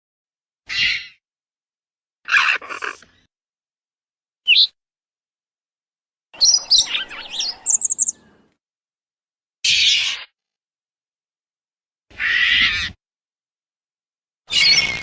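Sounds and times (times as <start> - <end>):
creature chirps and trill: 2.2 - 3.1
creature screech: 2.3 - 3.0.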